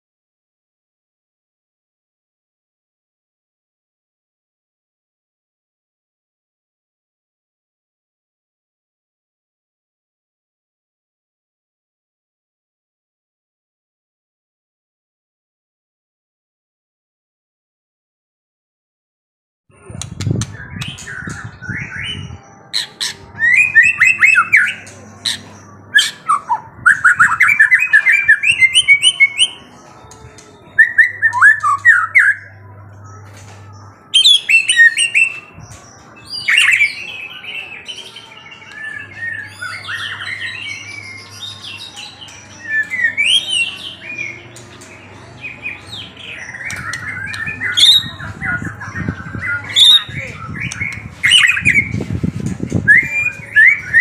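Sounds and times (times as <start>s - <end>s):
songbird chirping: 19.9s - 54.0s.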